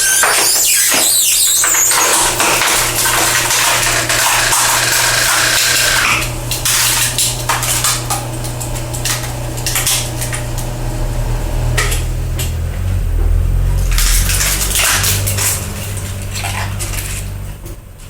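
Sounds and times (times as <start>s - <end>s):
electric motor running: 1.4s - 17.6s
logs cracking and clattering: 11.7s - 17.8s.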